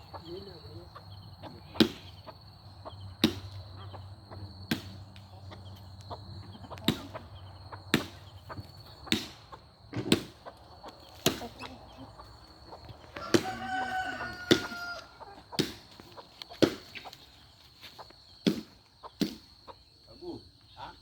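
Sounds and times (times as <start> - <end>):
firewood being chopped: 1.8 - 2.1, 3.2 - 3.6, 4.6 - 5.3, 6.8 - 7.2, 7.9 - 11.6, 13.0 - 17.2, 18.4 - 19.5.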